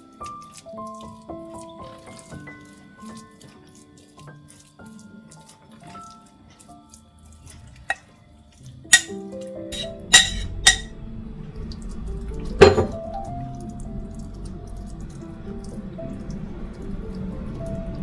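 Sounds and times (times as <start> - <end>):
soft background music: 0.0 - 9.8, 10.5 - 18.0
dishes and glassware clinking: 9.8 - 10.9, 12.6 - 13.0.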